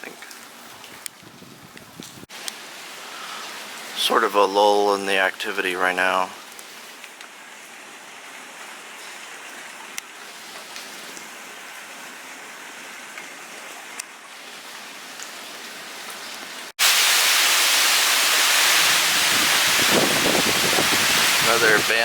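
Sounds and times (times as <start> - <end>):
light rain hissing: 0.0 - 22.0
rain drips: 0.0 - 22.0
loud wind and rain: 0.8 - 2.3, 16.8 - 22.0.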